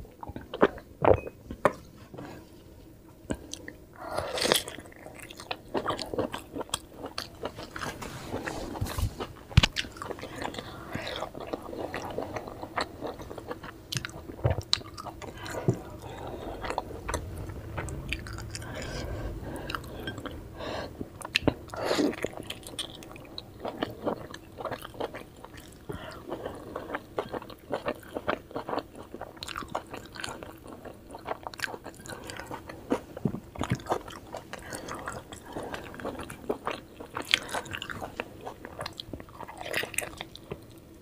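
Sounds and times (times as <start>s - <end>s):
person chewing soft food: 3.2s - 40.8s.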